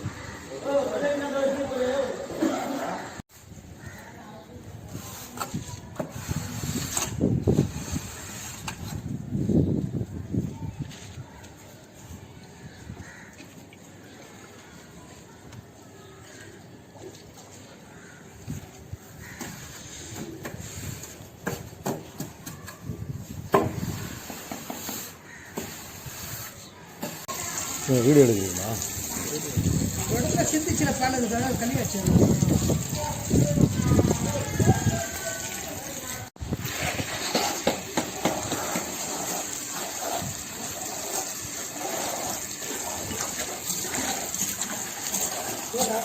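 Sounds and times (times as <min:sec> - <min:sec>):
water gushing: 0:25.7 - 0:46.0.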